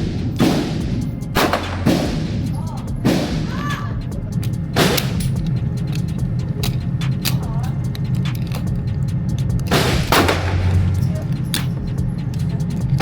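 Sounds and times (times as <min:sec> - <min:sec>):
gunshots with echo: 0:00.0 - 0:03.7, 0:04.8 - 0:05.4, 0:09.7 - 0:11.0
steady low hum: 0:00.0 - 0:13.0.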